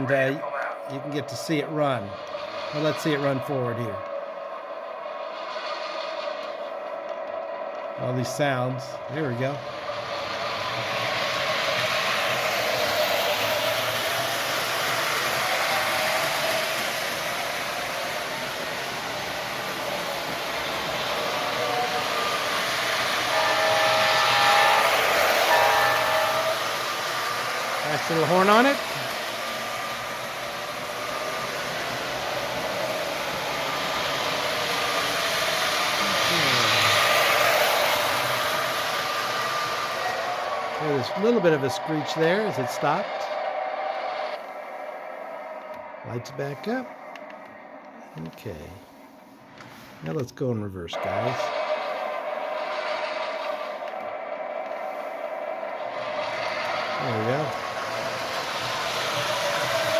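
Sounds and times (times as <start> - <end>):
model train motor and wheels: 0.0 - 59.9
diesel engine sound from speaker: 36.0 - 37.0.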